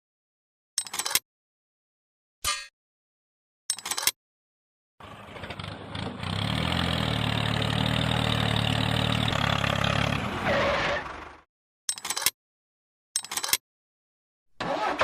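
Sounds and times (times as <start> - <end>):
engine starting and idling: 14.6 - 15.0.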